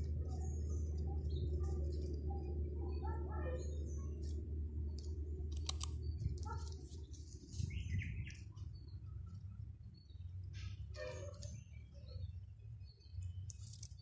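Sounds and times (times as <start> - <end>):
steady low rumble: 0.0 - 14.0
sharp clicks: 4.3 - 6.8
bird chirps: 5.9 - 14.0.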